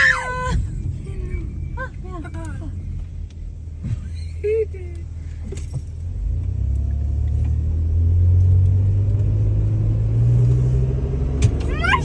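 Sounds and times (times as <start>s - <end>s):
car driving rumble inside cabin: 0.0s - 12.0s.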